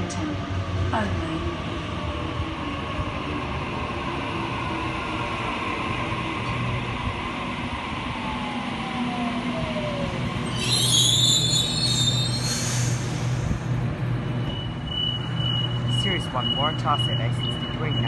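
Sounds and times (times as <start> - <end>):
train brakes squealing: 10.4 - 18.0.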